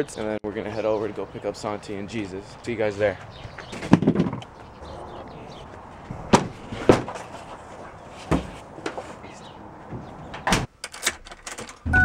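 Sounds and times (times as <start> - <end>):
sharp knocks and thumps: 3.6 - 4.5, 6.1 - 7.3, 8.2 - 9.1.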